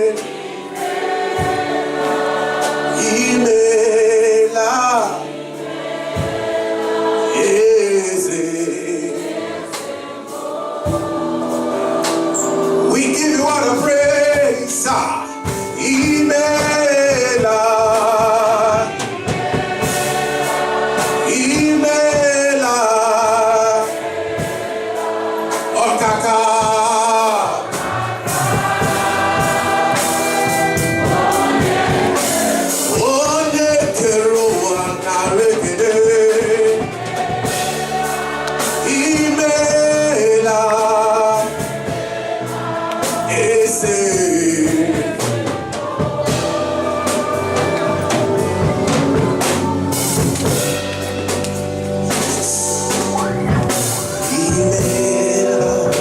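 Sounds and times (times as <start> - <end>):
choir singing with vibrato: 0.0 - 56.0
sustained musical accompaniment: 0.0 - 56.0.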